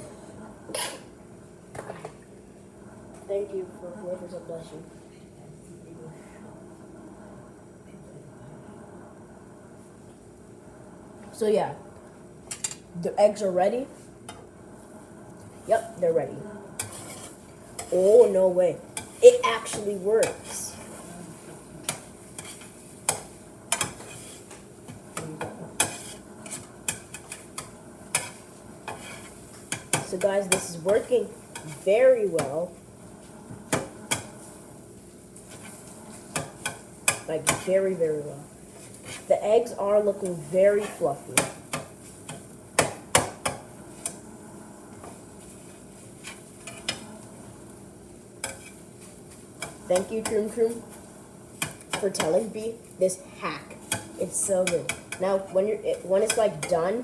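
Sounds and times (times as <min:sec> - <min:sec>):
faint sizzle: 0:00.0 - 0:57.0
utensil scraping a pan: 0:16.8 - 0:34.7, 0:35.4 - 0:47.7, 0:48.4 - 0:52.8.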